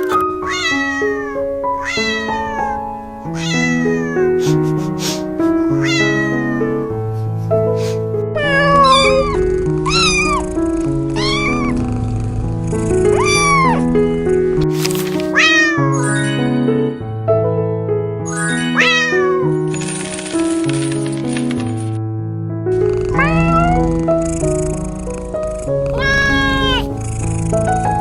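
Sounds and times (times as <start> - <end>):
cat meowing: 0.0 - 7.2, 8.3 - 12.1, 12.7 - 14.2, 14.9 - 16.4, 18.4 - 19.5, 23.1 - 24.9, 25.7 - 27.7
background music: 0.0 - 28.0.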